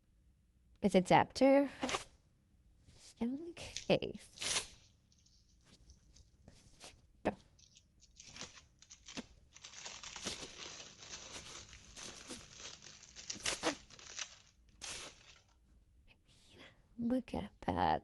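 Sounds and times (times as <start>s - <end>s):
packaging crinkling and tearing: 7.7s - 15.6s.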